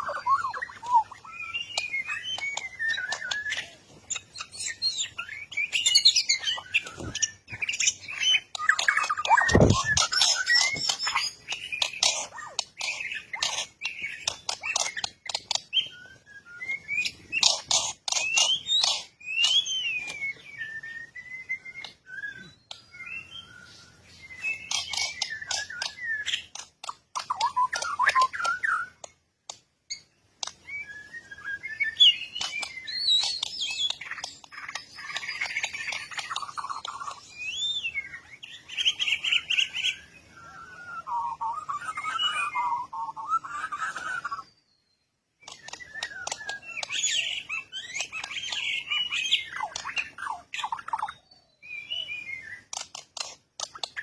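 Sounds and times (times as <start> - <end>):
bird rasping chatter: 0.0 - 15.8, 17.0 - 20.2, 24.4 - 29.1, 32.1 - 40.0, 45.4 - 51.2, 52.4 - 54.0
birds chirping and whistling: 0.0 - 54.0.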